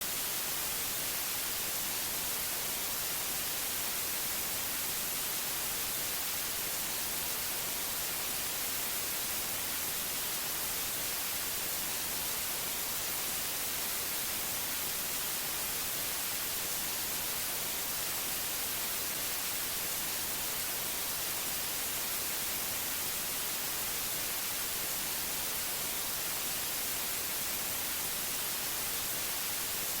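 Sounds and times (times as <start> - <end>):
white noise hiss: 0.0 - 30.0.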